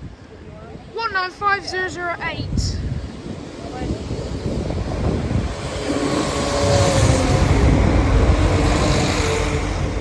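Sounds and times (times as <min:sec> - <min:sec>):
train wheels rumbling on rails: 0:02.5 - 0:10.0.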